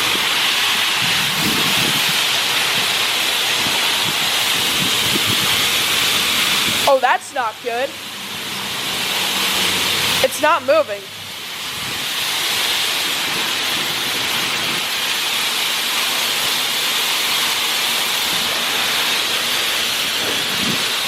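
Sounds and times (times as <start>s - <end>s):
water spraying in car wash: 0.0s - 21.0s.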